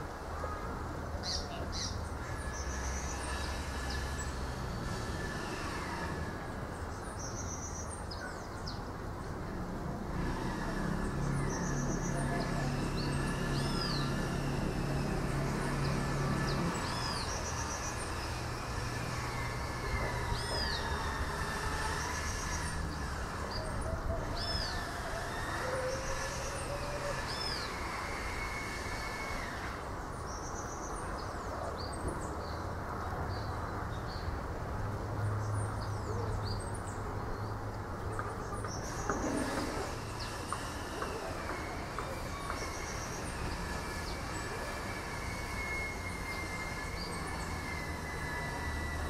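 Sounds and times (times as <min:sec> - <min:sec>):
breeze rushing: 0:01.7 - 0:07.8, 0:09.0 - 0:30.8.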